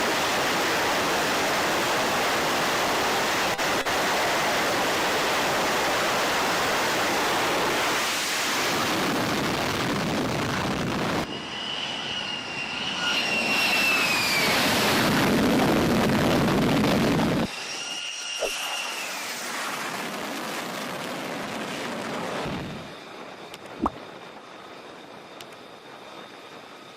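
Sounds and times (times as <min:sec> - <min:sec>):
jet engine rush: 0:00.0 - 0:26.9
high engine whine: 0:00.1 - 0:21.3.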